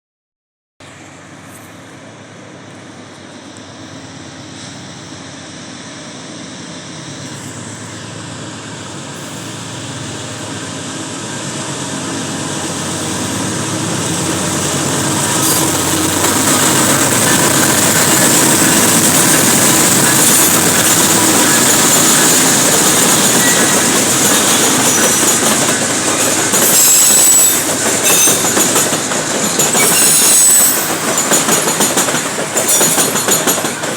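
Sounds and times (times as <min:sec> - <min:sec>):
diesel locomotive approaching: 0:00.8 - 0:33.9
wagon wheels clattering and squealing: 0:15.2 - 0:33.9.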